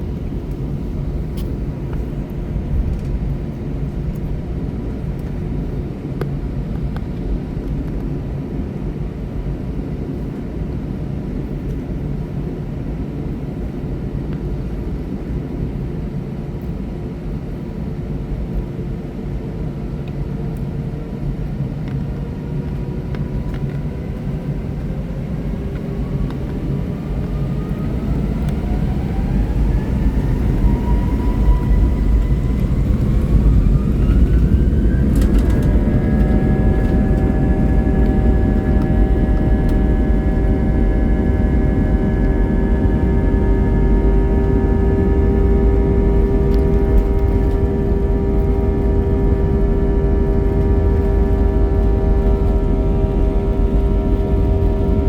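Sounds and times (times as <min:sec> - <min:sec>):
jet engine rumble in cabin: 0:00.0 - 0:55.0
jet engine whine rising: 0:19.1 - 0:55.0.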